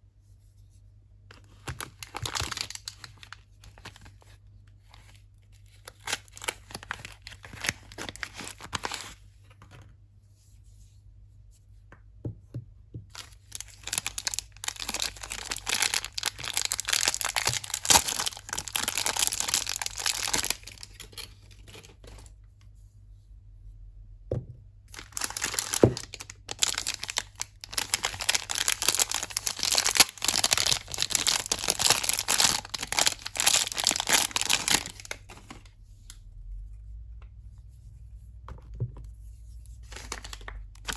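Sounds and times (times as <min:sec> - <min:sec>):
wrapping crackling and tearing: 0:01.4 - 0:04.2, 0:04.8 - 0:09.2, 0:13.1 - 0:22.3, 0:24.9 - 0:35.7, 0:39.8 - 0:40.9.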